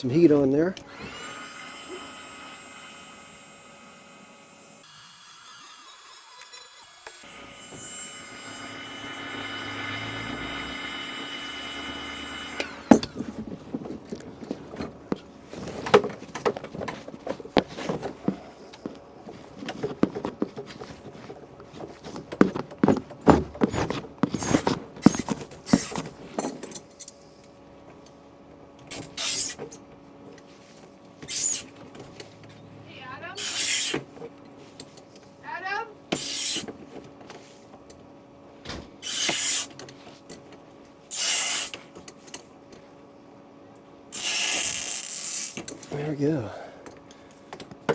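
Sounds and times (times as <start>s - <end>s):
heat gun running: 0.8s - 13.2s.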